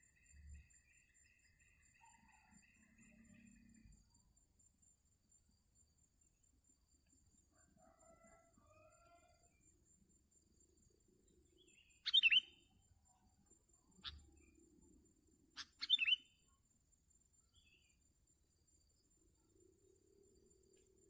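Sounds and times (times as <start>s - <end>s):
bird calling: 12.0s - 12.5s.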